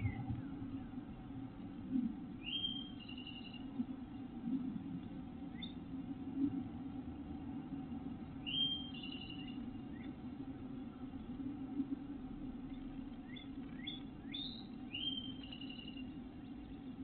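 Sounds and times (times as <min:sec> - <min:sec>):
steady low hum: 0:00.0 - 0:17.0
songbird calling: 0:02.4 - 0:03.7, 0:08.4 - 0:10.2, 0:13.2 - 0:16.9.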